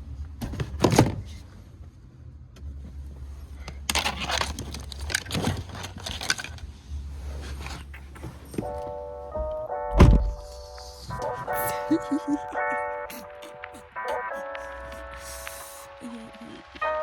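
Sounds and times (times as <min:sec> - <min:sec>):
rustling and scraping: 0:02.7 - 0:08.9
thump: 0:10.0 - 0:10.4.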